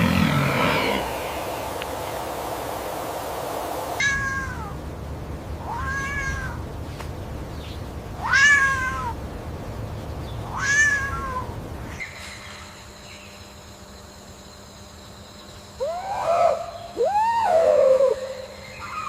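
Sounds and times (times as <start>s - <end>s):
steady hiss: 0.0s - 16.0s
cat meowing: 4.0s - 4.8s, 5.6s - 6.6s, 8.2s - 9.2s, 10.5s - 11.5s.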